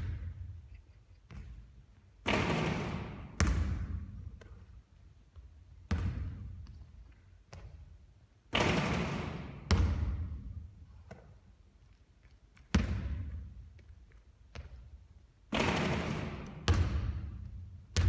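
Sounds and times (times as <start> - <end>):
basketball bouncing on court: 1.3 - 4.6, 5.3 - 6.9, 7.5 - 7.9, 8.5 - 11.3, 12.6 - 13.8, 14.5 - 18.0.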